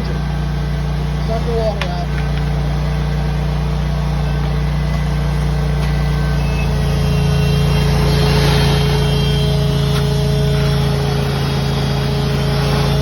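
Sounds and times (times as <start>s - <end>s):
vacuum excavator droning: 0.0s - 13.0s.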